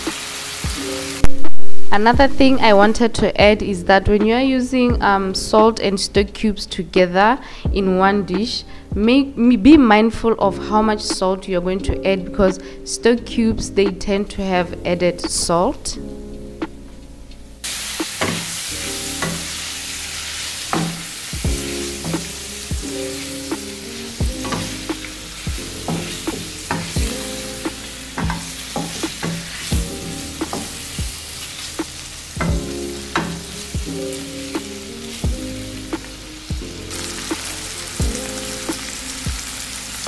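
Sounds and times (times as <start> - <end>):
food sizzling in a pan: 0.0 - 2.0, 17.6 - 40.0
spatula clacking against steel pan: 28.2 - 29.5.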